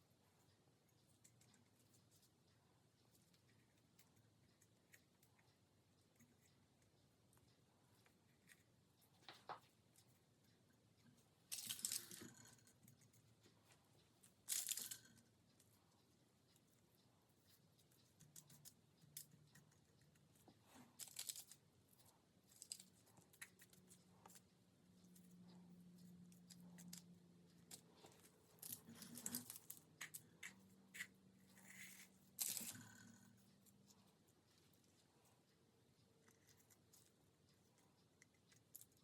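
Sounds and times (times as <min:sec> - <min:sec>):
low steady hum: 0:00.0 - 0:39.0.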